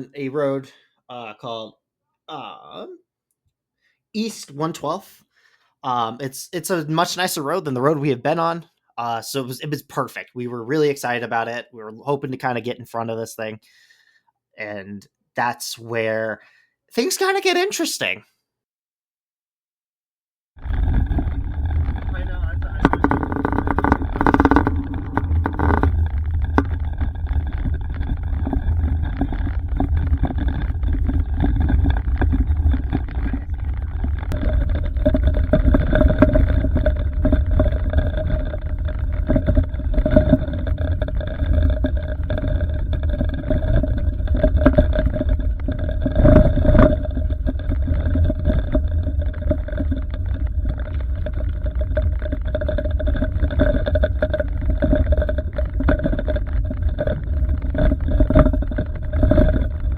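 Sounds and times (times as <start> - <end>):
steady hum: 20.6 - 59.9
tyre and engine rumble: 20.6 - 59.9.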